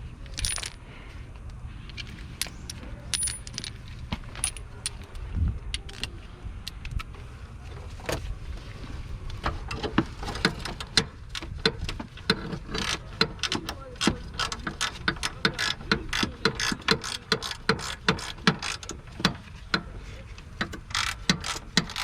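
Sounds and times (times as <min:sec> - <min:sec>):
steady low hum: 0:00.0 - 0:14.4
metal tools clinking: 0:00.2 - 0:00.9, 0:01.9 - 0:05.2.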